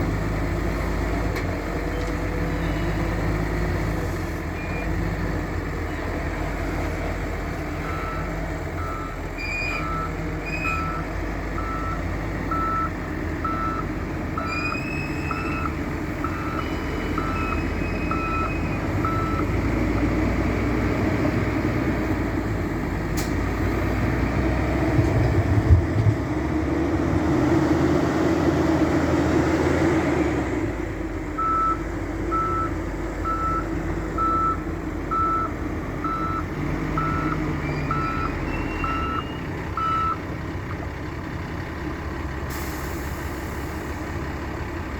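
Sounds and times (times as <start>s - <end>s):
diesel engine running: 0.0s - 44.9s
reversing alarm beeping: 7.8s - 19.5s, 31.4s - 40.2s.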